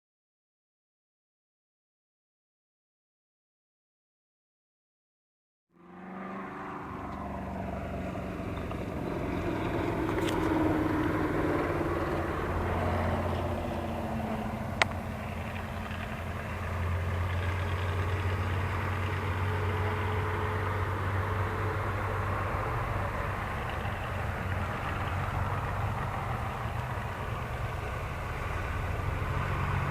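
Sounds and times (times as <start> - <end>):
car engines driving past: 5.7 - 29.9.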